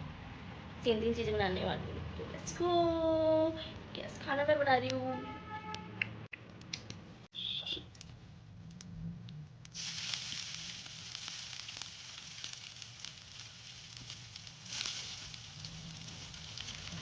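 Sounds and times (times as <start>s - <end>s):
food sizzling in hot oil: 9.7s - 17.0s.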